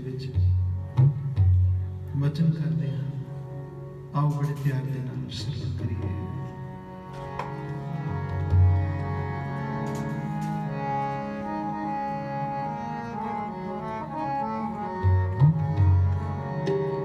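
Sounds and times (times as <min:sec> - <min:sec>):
harmonium sustained notes: 0:00.0 - 0:17.0
tabla bass drum strokes: 0:00.3 - 0:02.1.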